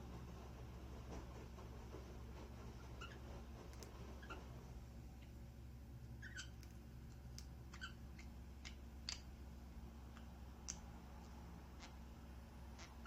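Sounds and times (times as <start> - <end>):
steady low hum: 0.0 - 13.0
budgerigars chirping: 6.2 - 6.6, 7.7 - 8.8, 12.8 - 13.0.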